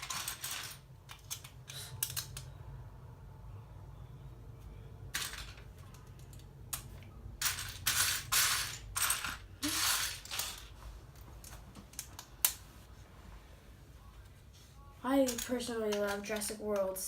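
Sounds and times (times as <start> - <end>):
plastic bricks clattering: 0.0 - 2.3, 5.2 - 6.8, 7.4 - 10.7.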